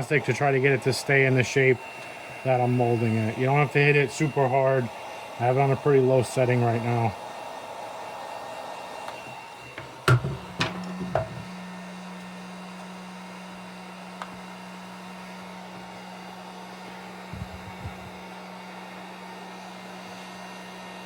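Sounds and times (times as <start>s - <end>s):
heat gun blowing hiss: 0.0s - 21.0s
sharp knocks: 9.8s - 11.5s.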